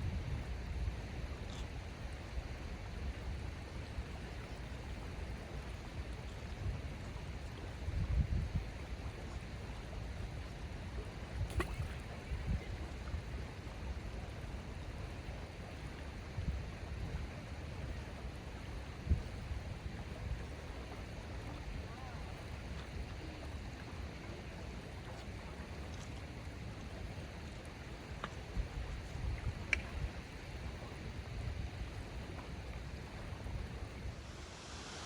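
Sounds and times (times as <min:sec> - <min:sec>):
wind buffeting microphone: 0:07.9 - 0:08.8
water rushing: 0:33.2 - 0:35.0.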